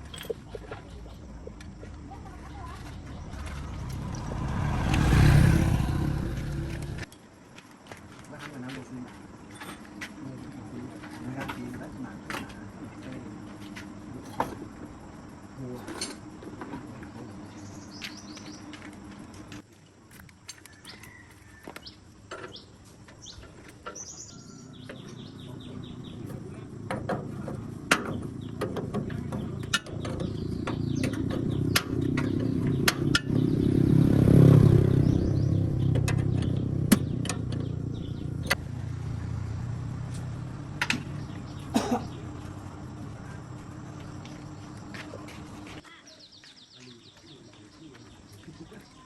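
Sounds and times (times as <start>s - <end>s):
vehicle engine passing: 1.0s - 7.1s, 24.4s - 45.8s
faint bird chirps: 15.6s - 18.9s, 20.7s - 26.7s.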